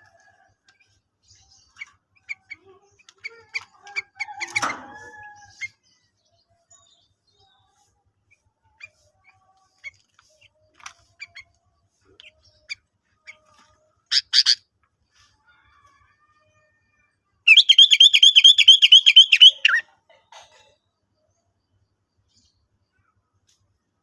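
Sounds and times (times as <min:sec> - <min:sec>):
bird chirping and trilling: 0:12.3 - 0:14.6, 0:17.5 - 0:19.8.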